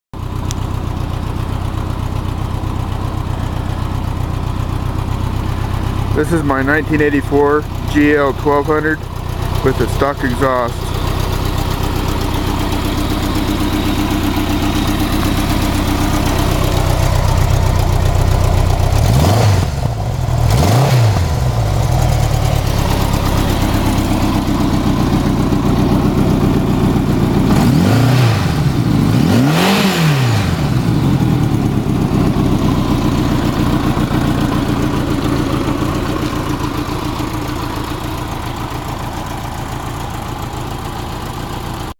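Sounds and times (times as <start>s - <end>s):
motorcycle engine idling and revving: 0.2s - 41.9s.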